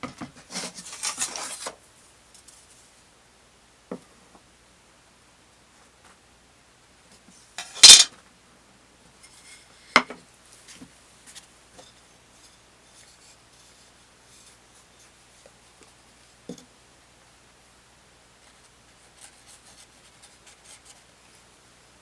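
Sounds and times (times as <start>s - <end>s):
clatter on workbench: 7.6s - 8.1s.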